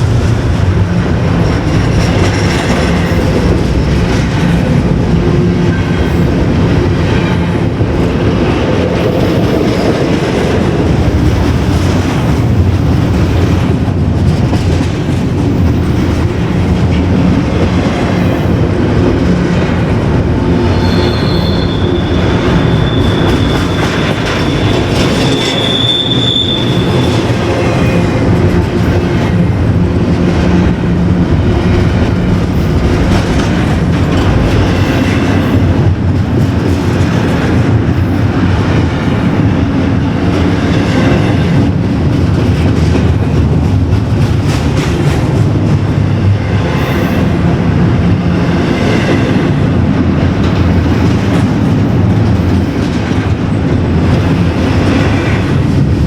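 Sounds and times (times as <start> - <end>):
train rumbling past: 0.0 - 56.0
high-pitched wheel squeal: 20.7 - 27.2.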